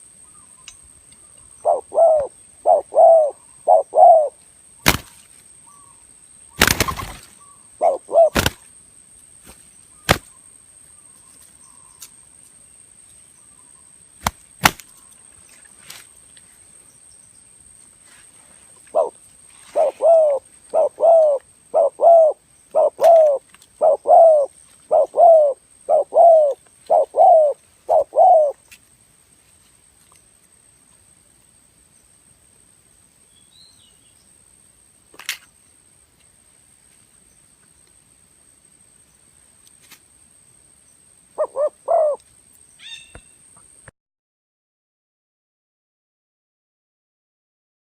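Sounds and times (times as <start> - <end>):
dove cooing: 1.6 - 4.4, 6.6 - 8.6, 18.8 - 28.6, 41.4 - 42.2.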